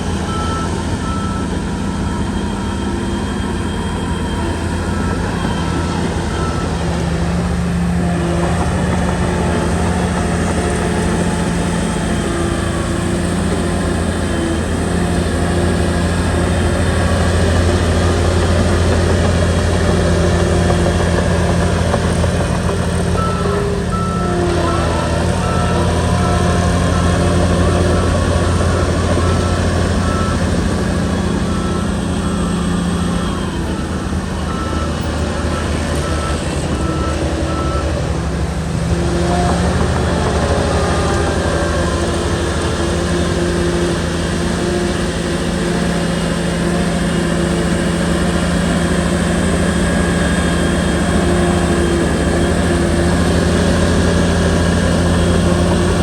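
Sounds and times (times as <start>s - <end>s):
reverse alarm beeping: 0.0s - 38.0s
bulldozer diesel engine: 0.0s - 56.0s.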